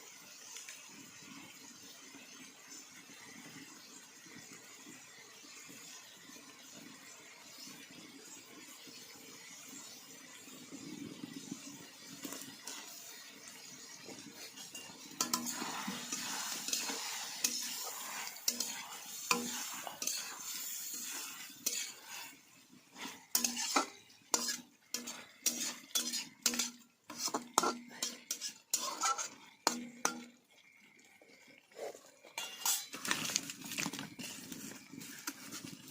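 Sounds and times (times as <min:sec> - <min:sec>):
food sizzling in a pan: 0:00.0 - 0:35.9
spoon clinking and scraping pan: 0:11.5 - 0:30.6, 0:32.3 - 0:35.9.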